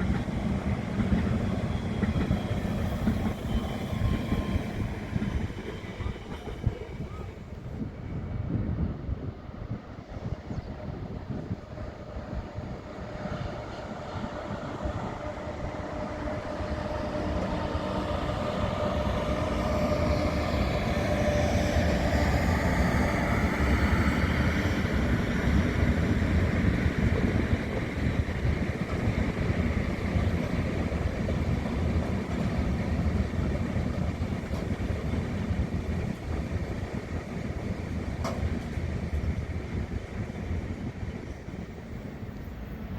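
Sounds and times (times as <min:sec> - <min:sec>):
train whine shifting in pitch: 0:00.0 - 0:09.0, 0:11.5 - 0:35.4
train running on tracks: 0:00.0 - 0:42.9.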